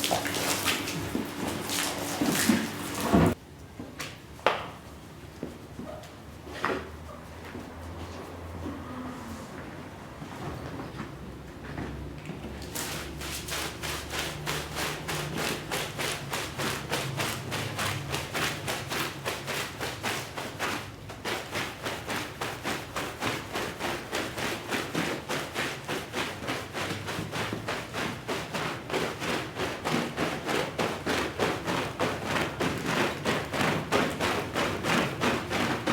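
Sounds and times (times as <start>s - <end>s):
brush scrubbing wet rug: 0.0s - 3.4s, 12.6s - 35.9s.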